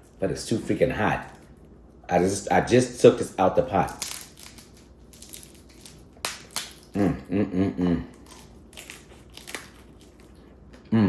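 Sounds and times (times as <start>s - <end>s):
crab shell cracking: 3.7s - 7.0s, 8.1s - 10.4s.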